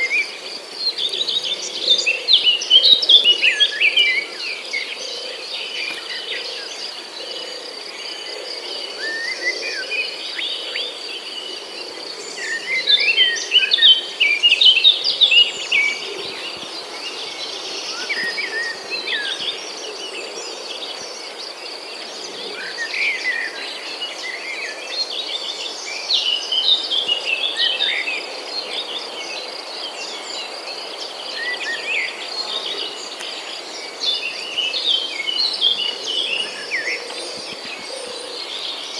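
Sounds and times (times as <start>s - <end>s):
birds calling and chirping: 0.0s - 38.9s
insects trilling: 0.0s - 38.9s.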